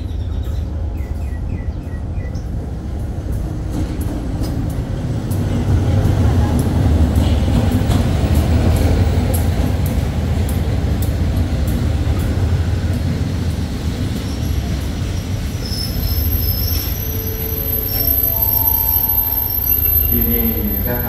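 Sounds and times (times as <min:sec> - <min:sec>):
train rumbling: 0:00.0 - 0:21.0
train wheel clicks: 0:03.0 - 0:15.0
high brake squeal: 0:14.3 - 0:21.0.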